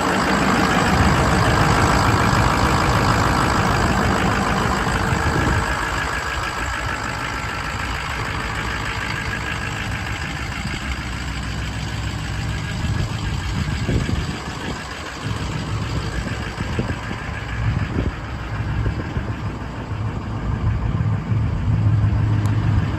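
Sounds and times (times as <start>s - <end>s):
diesel engine idling: 0.0s - 22.9s.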